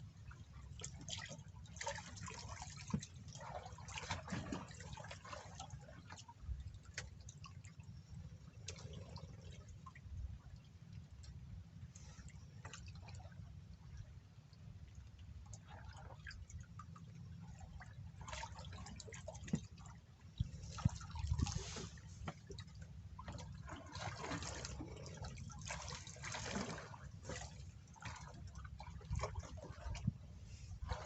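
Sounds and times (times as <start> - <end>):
water splashing and dripping: 18.2 - 30.2.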